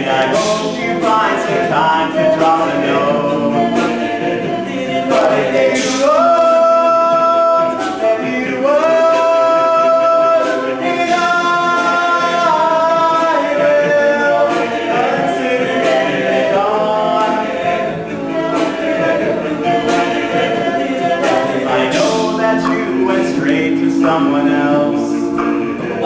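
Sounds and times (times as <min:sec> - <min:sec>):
men singing a cappella harmony: 0:00.0 - 0:26.0.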